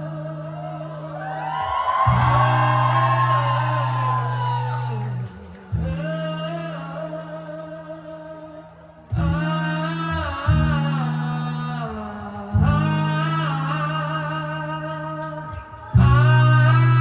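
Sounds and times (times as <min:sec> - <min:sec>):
sustained low acoustic chords: 0:12.5 - 0:15.1.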